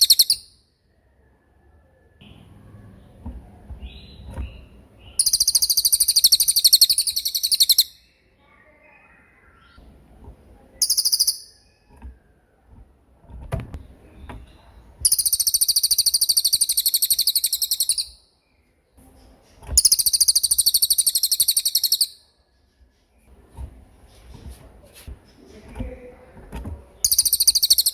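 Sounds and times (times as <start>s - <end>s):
songbird high rolling trills: 0.0s - 0.6s, 3.9s - 8.2s, 10.8s - 11.9s, 15.0s - 18.3s, 19.8s - 22.2s, 27.0s - 27.9s.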